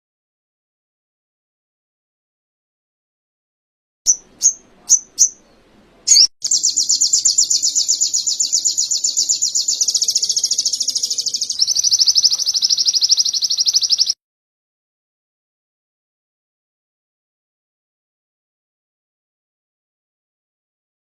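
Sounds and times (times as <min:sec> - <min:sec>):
bird chirps and trills: 0:04.1 - 0:14.2.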